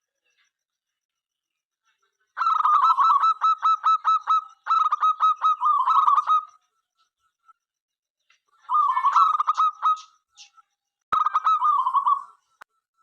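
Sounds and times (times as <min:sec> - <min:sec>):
dove cooing: 0:02.4 - 0:06.5, 0:08.7 - 0:10.1, 0:11.2 - 0:12.4.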